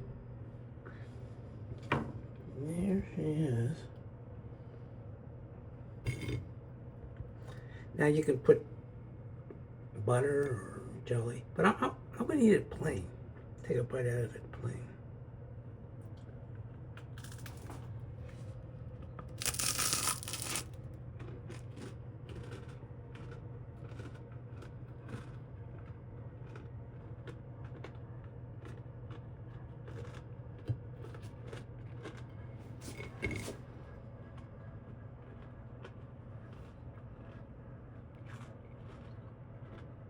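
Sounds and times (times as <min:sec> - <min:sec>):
chewing clicks and crackles: 0:19.1 - 0:32.6, 0:38.1 - 0:40.0
crunchy bite into crumpet: 0:19.3 - 0:28.0, 0:28.6 - 0:32.3.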